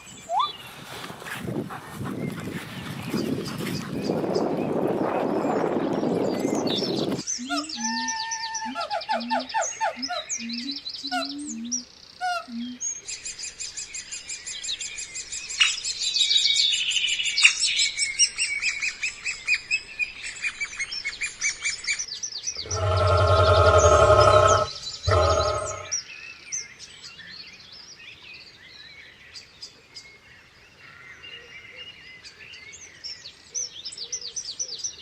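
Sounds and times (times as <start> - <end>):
noise burst: 22.6 - 25.9
birds chirping: 22.6 - 26.0.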